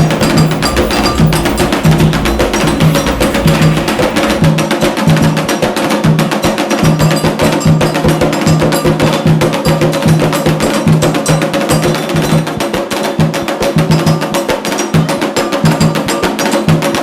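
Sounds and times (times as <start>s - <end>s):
deep drum strokes: 0.0s - 4.5s
fast percussion rhythm: 0.0s - 4.5s.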